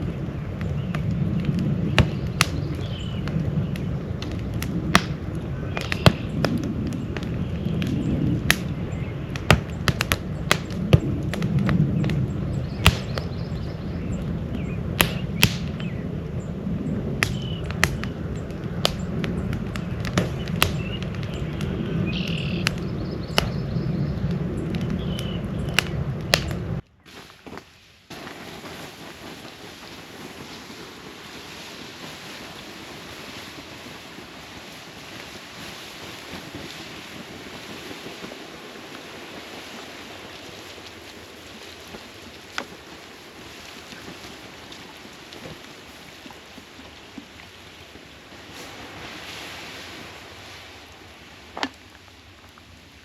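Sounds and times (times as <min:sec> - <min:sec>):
campfire crackling: 0:00.0 - 0:53.0
bird chirps: 0:01.9 - 0:04.0, 0:12.0 - 0:16.1, 0:16.8 - 0:18.2, 0:20.3 - 0:26.0.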